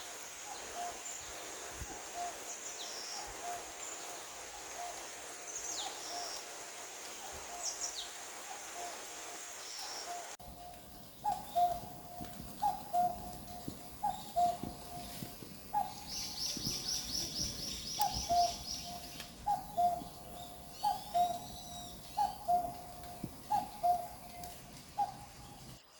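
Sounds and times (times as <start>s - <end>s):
high bird chirps: 15.8s - 25.7s.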